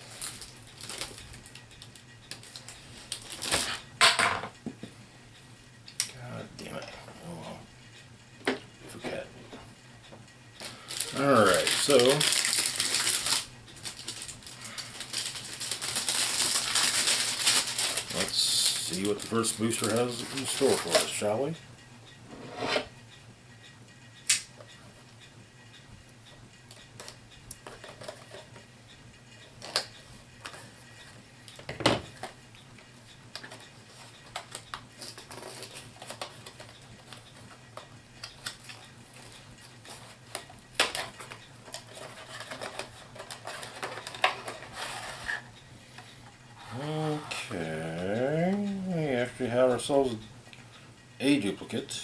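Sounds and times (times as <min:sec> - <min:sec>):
packaging rustling: 0:00.0 - 0:01.5, 0:02.4 - 0:03.7, 0:10.6 - 0:21.2, 0:34.3 - 0:36.7
low steady hum: 0:00.0 - 0:52.0.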